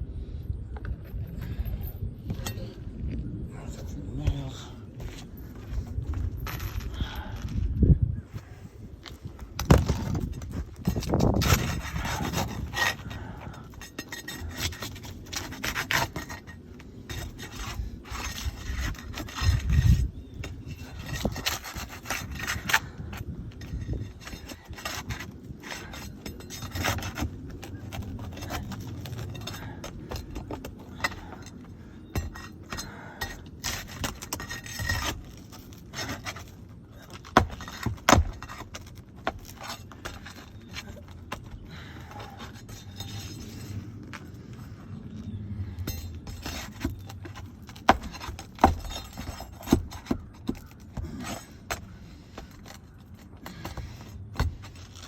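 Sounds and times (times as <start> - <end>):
tools scraping roof shingles: 9.4 - 44.8, 45.8 - 55.0.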